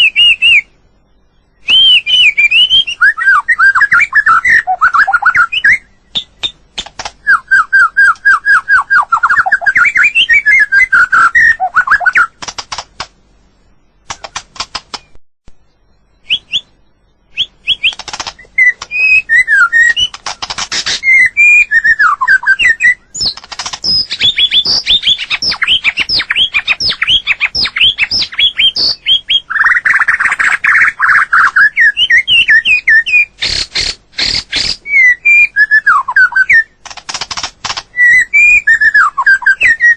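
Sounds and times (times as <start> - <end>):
bird singing whistles and trills: 0.0 - 6.6, 7.2 - 12.4, 15.0 - 33.6, 34.2 - 36.8, 37.9 - 39.9
sharp rapid clicks: 6.4 - 7.2, 12.2 - 13.2, 14.0 - 15.1, 17.7 - 19.0, 19.8 - 21.1, 23.2 - 31.2, 36.8 - 38.0.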